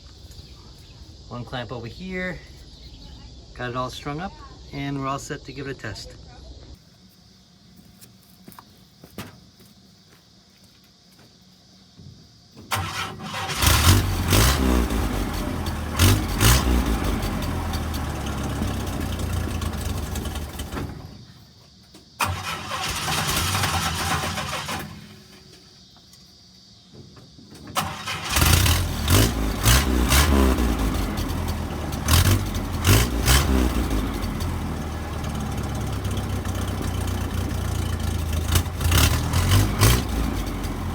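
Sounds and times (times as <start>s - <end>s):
engine starting and running: 12.6s - 21.3s, 22.2s - 25.7s, 27.6s - 40.9s.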